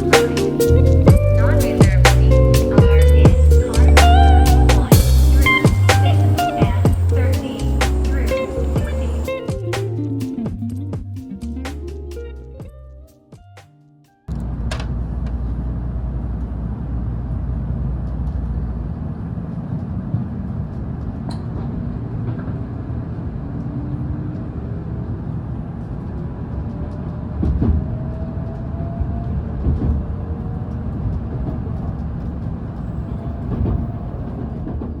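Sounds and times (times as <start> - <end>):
electric train rumbling on rails: 0.0 - 11.6, 14.4 - 35.0
motor whine: 2.7 - 11.0.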